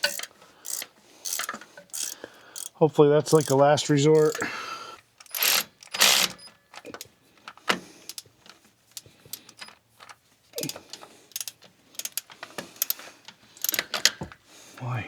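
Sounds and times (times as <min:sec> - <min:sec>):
hand ratchet clicking: 0:00.0 - 0:04.6, 0:05.2 - 0:07.1, 0:08.1 - 0:08.3, 0:08.9 - 0:09.8, 0:10.6 - 0:14.1.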